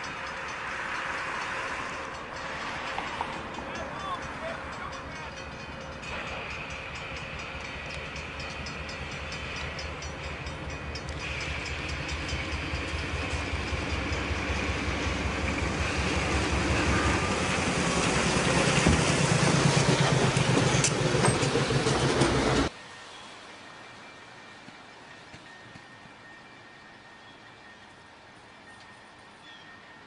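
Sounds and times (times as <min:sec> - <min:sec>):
diesel locomotive engine: 0:00.0 - 0:30.0
snow plow scraping: 0:15.8 - 0:22.7.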